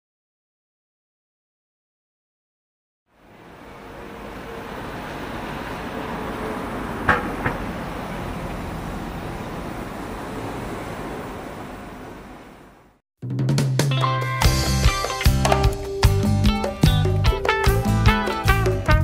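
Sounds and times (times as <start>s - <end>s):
wind: 3.1s - 13.0s
sea surf rushing: 3.2s - 13.0s
sharp knocks: 7.0s - 7.7s.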